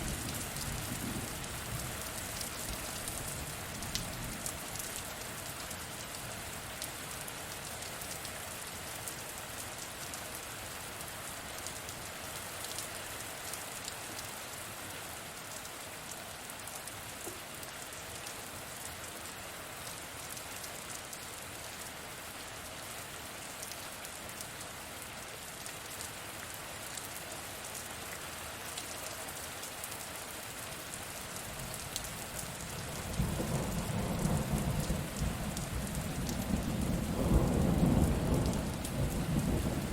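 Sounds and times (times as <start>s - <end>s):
low rumble of thunder: 0.0s - 2.0s, 32.8s - 39.9s
steady rain: 0.0s - 39.9s.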